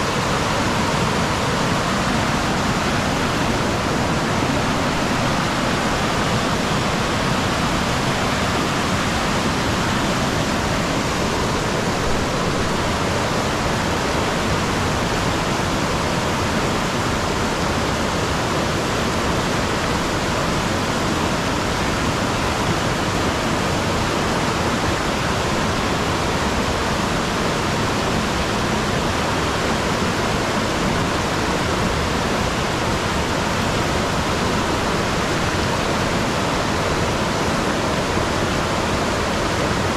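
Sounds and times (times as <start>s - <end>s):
falling water rushing: 0.0s - 39.9s.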